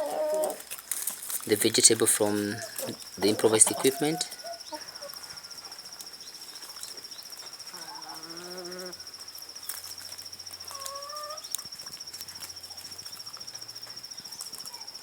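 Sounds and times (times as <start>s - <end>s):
chicken calling: 0.0s - 0.7s, 1.6s - 5.7s, 7.7s - 9.0s, 10.7s - 11.5s
crickets trilling: 0.0s - 15.0s.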